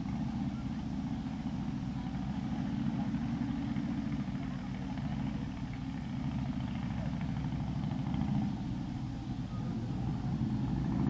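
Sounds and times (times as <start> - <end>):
motorcycle engine drone: 0.0 - 11.0.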